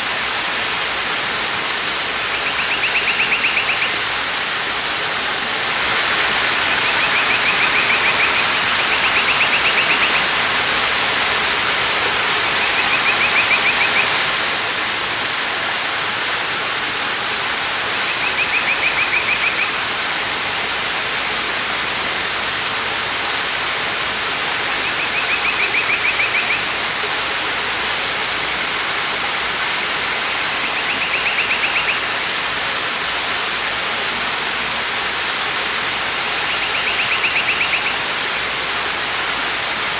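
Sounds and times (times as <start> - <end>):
waterfall rushing: 0.0 - 39.9
bird trilling: 2.4 - 4.0, 6.8 - 10.4, 30.6 - 32.1, 36.5 - 38.0.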